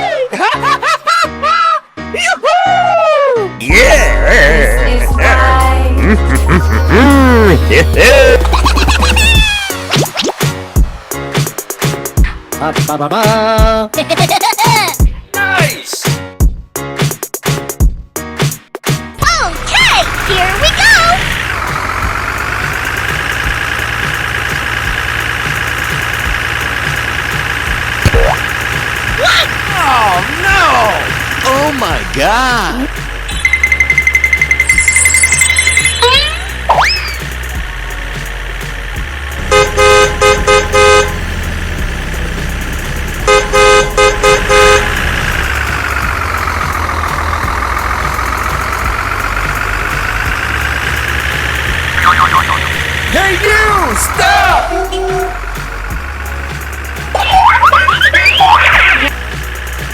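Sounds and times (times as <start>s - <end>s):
vehicle engine idling: 19.2s - 34.7s, 36.4s - 59.9s
vehicle horn honking: 39.4s - 41.3s, 43.3s - 45.4s
siren tone: 52.0s - 52.8s.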